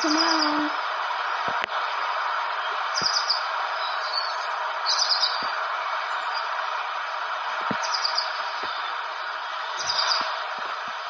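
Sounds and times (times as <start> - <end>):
steady hiss: 0.0 - 11.0
bird-like chirps and trills: 3.0 - 5.5, 7.8 - 9.0, 9.7 - 10.4.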